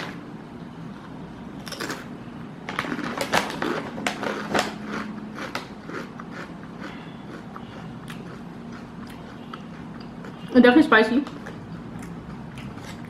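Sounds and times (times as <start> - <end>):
potato chips crunching: 1.6 - 2.1, 2.7 - 10.4.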